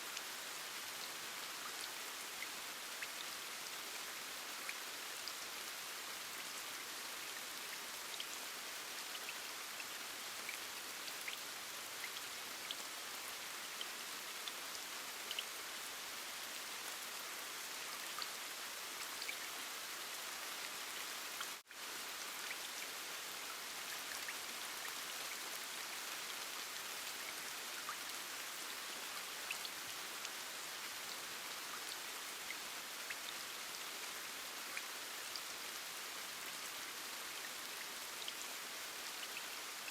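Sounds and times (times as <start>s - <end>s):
steady rain: 0.0s - 39.9s
raindrops ticking on a surface: 20.8s - 39.9s.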